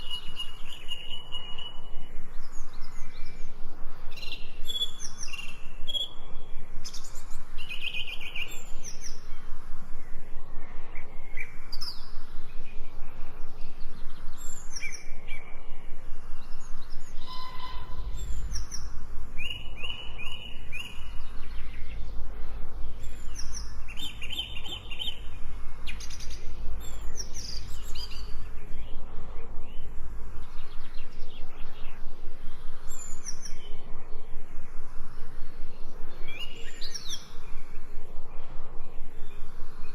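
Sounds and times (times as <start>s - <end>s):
birds chirping and singing: 0.0s - 34.4s, 35.2s - 39.5s.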